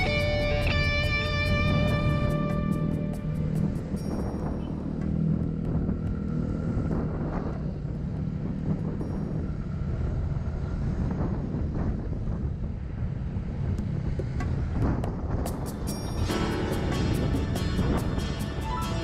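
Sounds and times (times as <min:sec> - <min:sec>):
scooter engine running: 0:00.0 - 0:06.8
wind and road noise: 0:00.0 - 0:19.0.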